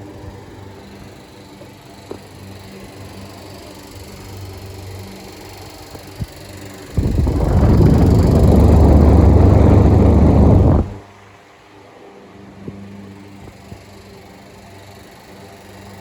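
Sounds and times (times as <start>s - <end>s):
fan motor humming: 6.8s - 11.0s
fan air rushing on microphone: 6.8s - 11.1s.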